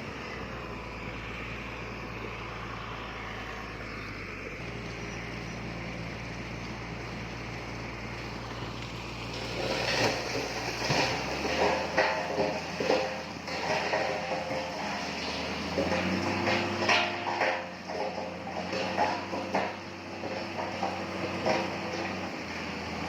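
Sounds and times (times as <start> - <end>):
heavy diesel engine running: 0.0 - 23.0
clattering and knocking: 9.4 - 22.7.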